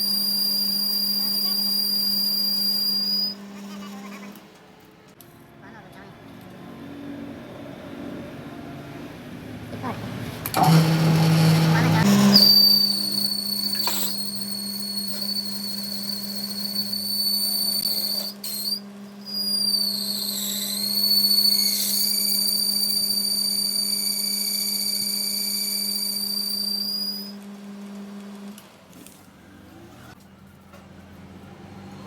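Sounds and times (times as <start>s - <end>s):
machine motor high-pitched whine: 0.0s - 5.1s, 10.5s - 30.2s.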